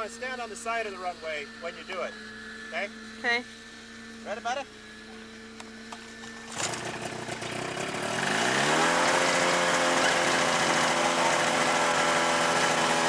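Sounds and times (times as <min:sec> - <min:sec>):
ultralight airplane engine revving: 0:00.0 - 0:13.0.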